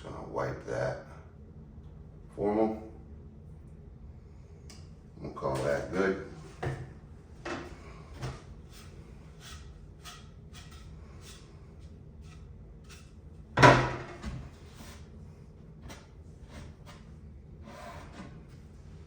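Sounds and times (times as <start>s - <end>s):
loud wooden knock: 13.6s - 14.4s.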